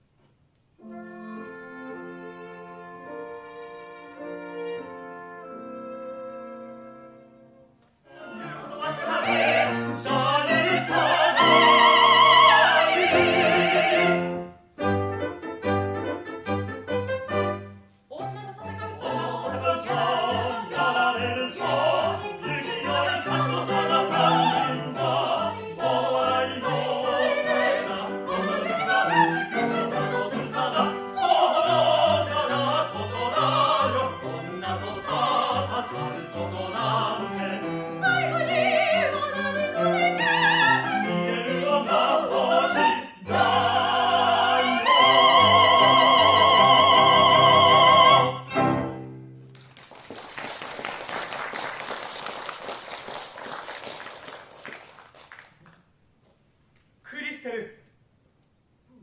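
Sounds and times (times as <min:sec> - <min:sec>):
orchestra playing: 0:00.8 - 0:10.0, 0:11.0 - 0:18.0, 0:42.8 - 0:49.4.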